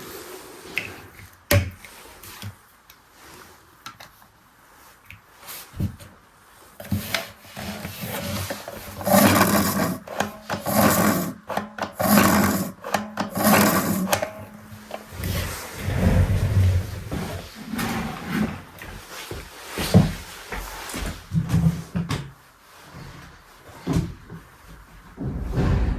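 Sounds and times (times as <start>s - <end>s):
plastic toy rubbing and scraping: 6.9s - 18.7s
heavy low rumble: 25.2s - 25.9s.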